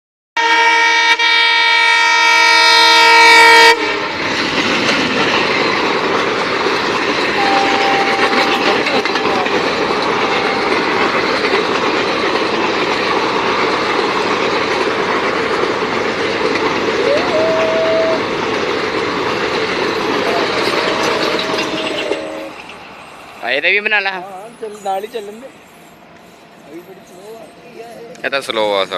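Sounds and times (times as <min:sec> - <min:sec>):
locomotive horn blaring: 0:00.4 - 0:04.1, 0:07.4 - 0:11.2, 0:17.0 - 0:18.3, 0:20.2 - 0:22.7
train passing at high speed: 0:00.4 - 0:28.9.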